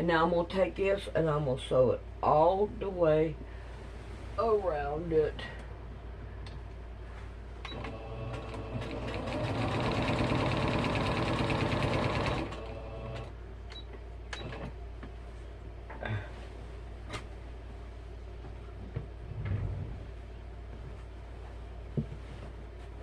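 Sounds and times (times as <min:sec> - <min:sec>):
sewing machine stitching: 0:07.7 - 0:13.3.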